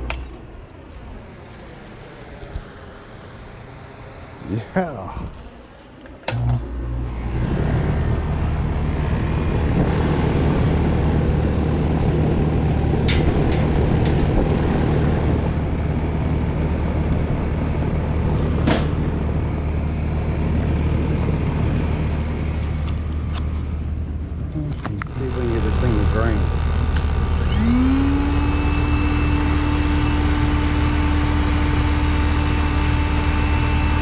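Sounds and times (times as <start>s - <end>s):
air conditioner unit humming: 0.0s - 34.0s
sharp clicks: 26.4s - 28.8s.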